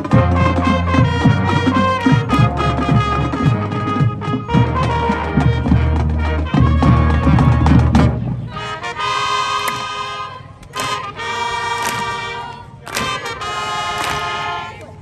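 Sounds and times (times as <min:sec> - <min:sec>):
marching band brass: 0:00.0 - 0:15.0
drum strikes: 0:09.7 - 0:10.0, 0:10.6 - 0:11.1, 0:11.8 - 0:13.4.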